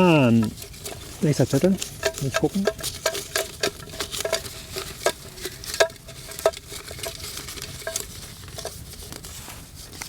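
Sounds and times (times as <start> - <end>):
low fire hiss: 0.0 - 3.1
campfire crackling: 0.0 - 7.1.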